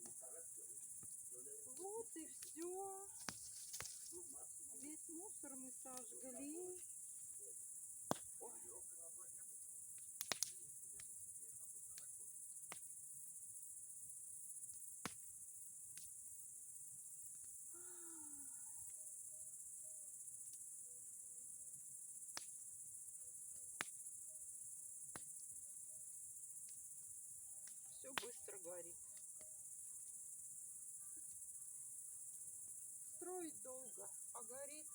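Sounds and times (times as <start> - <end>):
crickets chirping: 0.0 - 34.9
bonfire popping: 1.0 - 6.9, 8.0 - 8.9, 9.9 - 12.9, 27.6 - 29.5.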